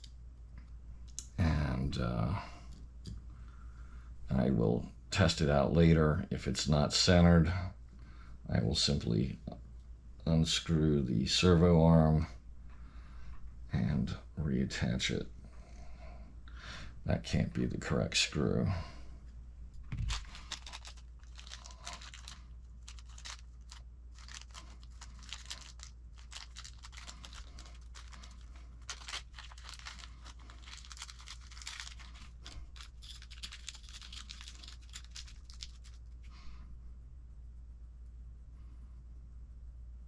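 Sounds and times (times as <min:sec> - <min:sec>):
plastic bags crinkling: 0:19.9 - 0:36.3.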